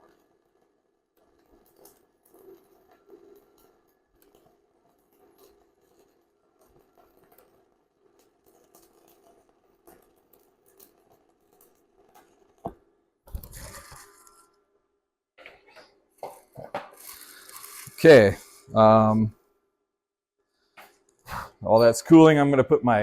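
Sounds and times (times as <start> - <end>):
welding arc crackling: 0.0 - 14.6, 15.4 - 19.3
scraping rustling noise: 13.3 - 14.4, 16.4 - 18.8.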